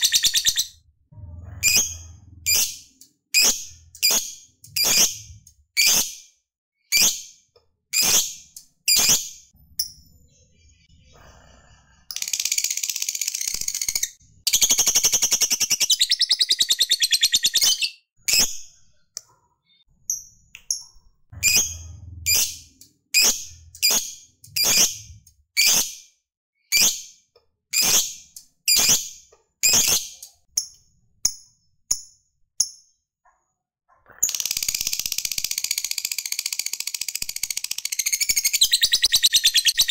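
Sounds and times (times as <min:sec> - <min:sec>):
bird chirping: 0:00.0 - 0:06.2, 0:12.2 - 0:25.8, 0:34.0 - 0:39.9
bird chattering trill: 0:37.4 - 0:39.9.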